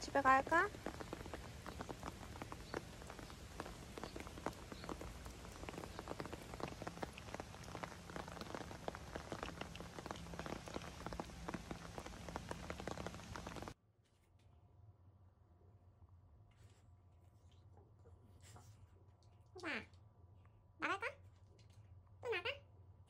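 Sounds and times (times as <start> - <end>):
steady rain falling: 0.0 - 13.8.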